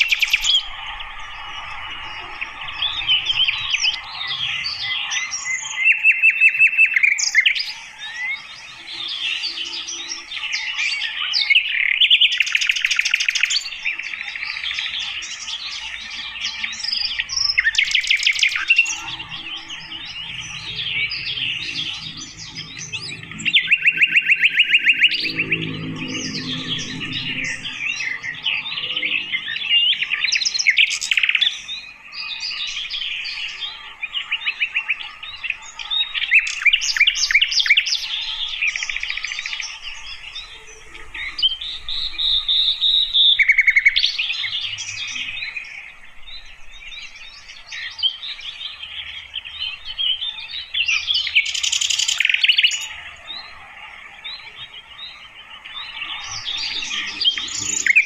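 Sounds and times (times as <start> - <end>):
long held bird whistle: 0.0 - 45.6
flycatcher chirps and trills: 0.0 - 58.0.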